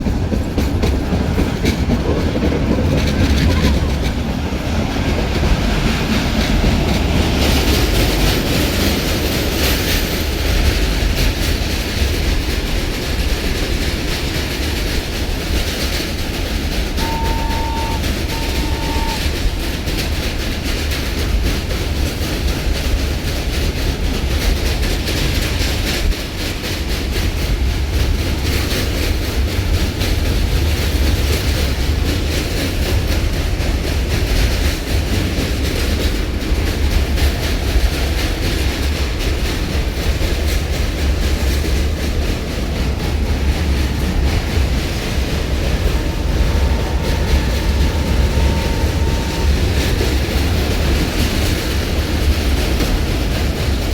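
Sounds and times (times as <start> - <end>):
train carriage rumbling: 0.0 - 53.9
wheels clacking over rail joints: 0.0 - 53.9
faint steady high tone: 17.0 - 19.3, 44.0 - 51.0.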